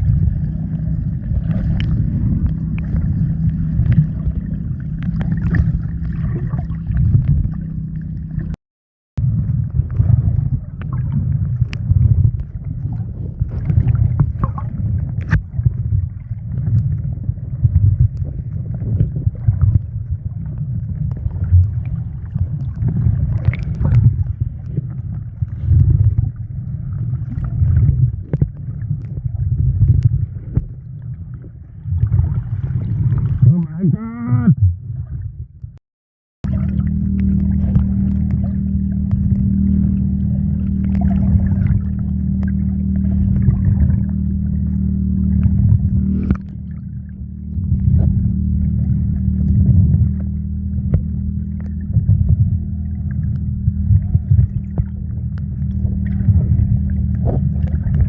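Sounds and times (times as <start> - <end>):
wind buffeting microphone: 0.0 - 8.5, 9.2 - 33.6, 37.2 - 58.0
boat engine drone: 0.0 - 8.6, 9.2 - 34.8, 36.4 - 58.0
water sloshing: 0.0 - 8.6, 9.2 - 33.6, 36.4 - 58.0.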